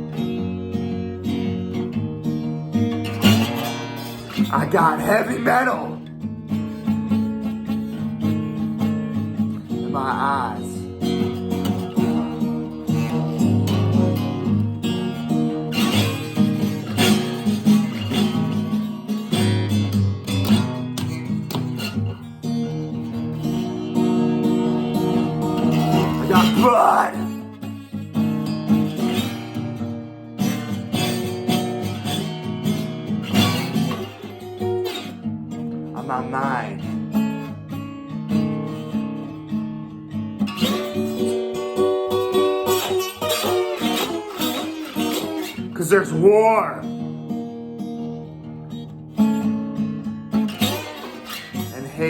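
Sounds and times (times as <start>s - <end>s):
acoustic blues guitar: 0.0s - 52.0s
person singing: 4.4s - 6.1s, 9.6s - 11.0s, 25.0s - 27.5s, 35.9s - 37.0s, 51.6s - 52.0s.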